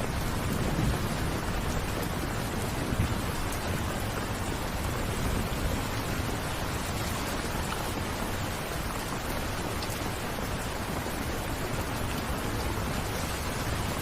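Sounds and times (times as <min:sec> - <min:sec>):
raindrops pattering: 0:00.0 - 0:14.0
steady rain: 0:00.0 - 0:14.0.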